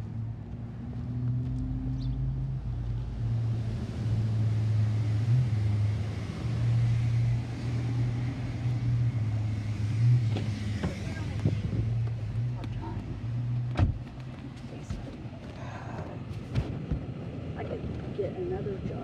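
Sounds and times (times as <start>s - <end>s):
car engine idling: 8.6s - 16.8s.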